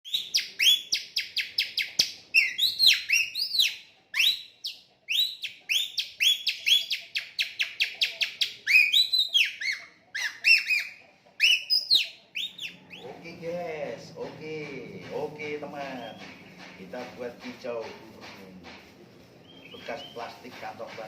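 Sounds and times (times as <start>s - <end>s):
whistled birdsong imitation: 0.0s - 13.4s, 15.7s - 17.6s, 19.4s - 20.7s.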